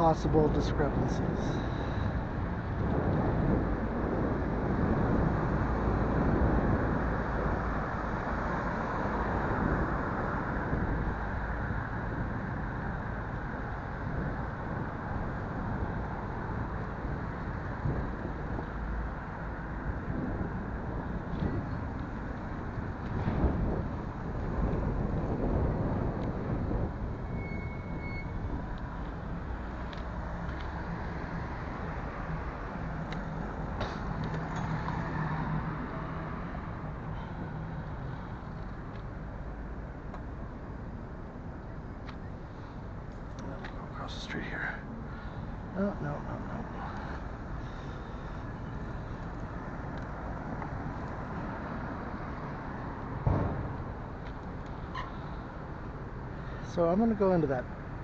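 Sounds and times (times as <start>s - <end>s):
car engines and tyres rumbling: 0.0s - 58.0s
road traffic noise: 0.0s - 58.0s
sharp thump: 53.2s - 54.0s.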